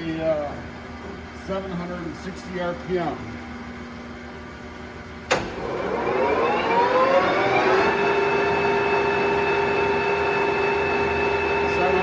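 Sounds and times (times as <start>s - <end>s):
sharp click: 5.3s - 5.6s
lathe spindle whine: 5.4s - 12.0s.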